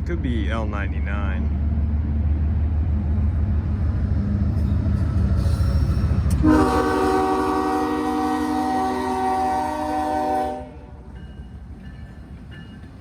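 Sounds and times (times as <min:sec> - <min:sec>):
diesel locomotive rumbling: 0:00.0 - 0:13.0
train air horn chord: 0:06.4 - 0:10.9.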